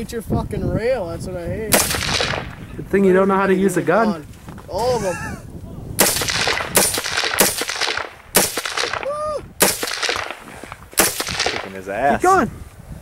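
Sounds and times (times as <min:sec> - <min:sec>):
rifle shots with echo: 0:01.7 - 0:02.7, 0:06.0 - 0:12.0.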